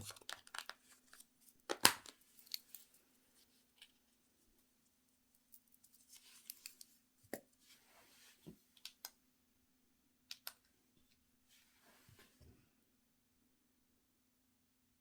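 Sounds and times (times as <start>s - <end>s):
small sharp clicks: 10.3s - 10.7s.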